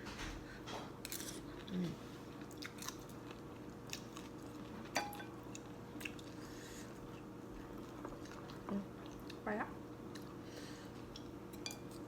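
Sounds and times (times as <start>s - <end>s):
person chewing: 1.0s - 4.8s, 5.4s - 9.4s.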